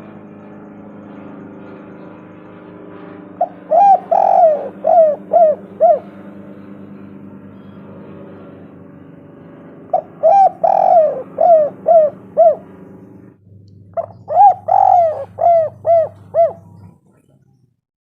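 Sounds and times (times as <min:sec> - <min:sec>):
low steady hum: 0:00.0 - 0:17.8
dove cooing: 0:03.4 - 0:08.5, 0:09.9 - 0:17.6.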